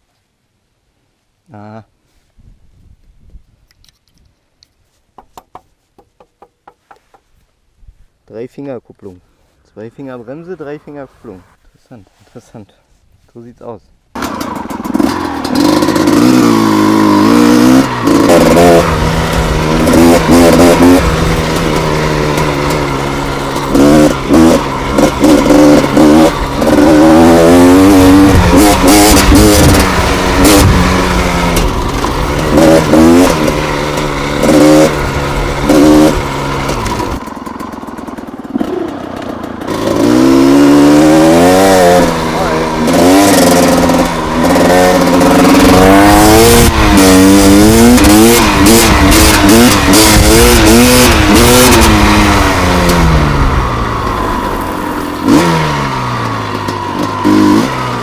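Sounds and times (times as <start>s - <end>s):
two-stroke motorcycle engine revving: 14.1s - 58.0s.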